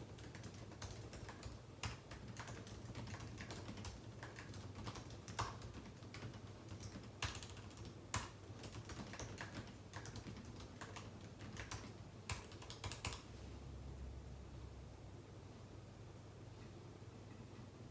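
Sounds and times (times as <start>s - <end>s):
typing on a keyboard: 0.0s - 13.2s.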